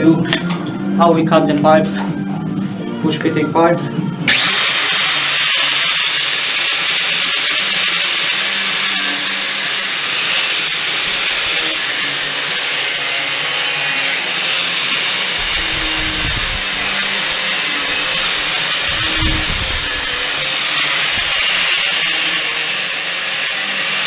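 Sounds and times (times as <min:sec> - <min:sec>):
background music: 0:00.0 - 0:04.4
low rumble: 0:15.4 - 0:21.4.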